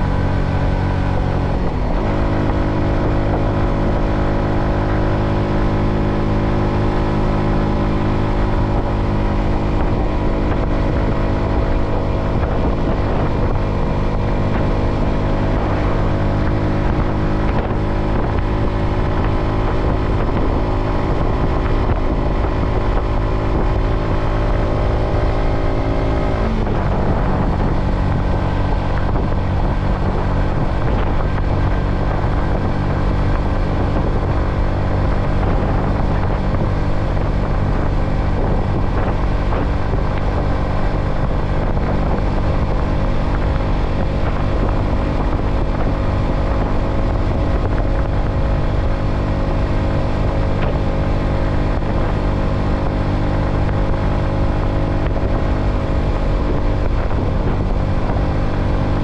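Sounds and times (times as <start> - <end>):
motorcycle engine cruising: 0.0 - 59.0
road noise: 0.0 - 59.0
wind noise: 0.0 - 59.0.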